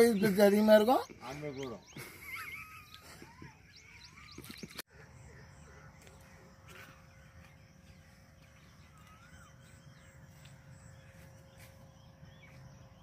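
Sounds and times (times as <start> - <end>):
faint bird calls: 1.2 - 13.0
faint steady hum: 4.9 - 13.0.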